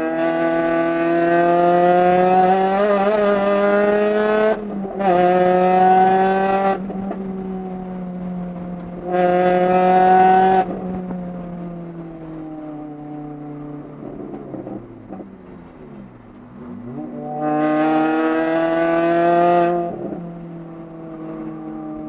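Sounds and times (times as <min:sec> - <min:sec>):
racing car engine revving: 0:00.0 - 0:07.5, 0:08.5 - 0:11.0, 0:16.6 - 0:22.0.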